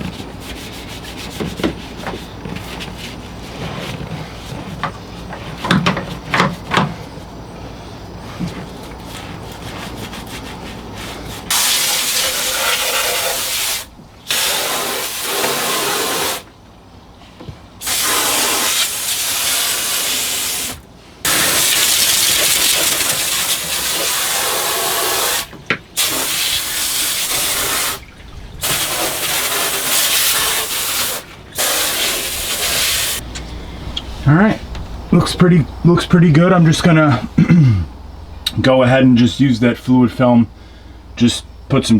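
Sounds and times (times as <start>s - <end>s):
water spraying from hose nozzle: 11.5s - 16.5s, 17.8s - 33.2s.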